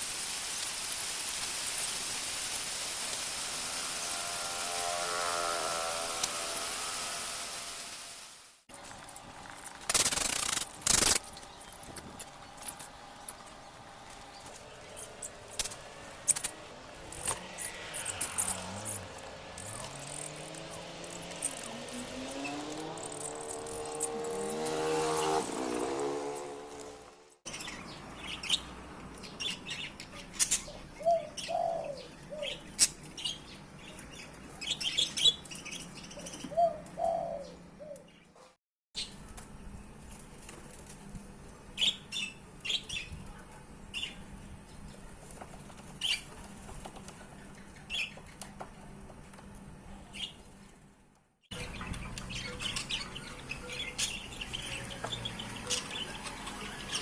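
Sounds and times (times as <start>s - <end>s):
chicks chirping: 51.5s - 57.0s.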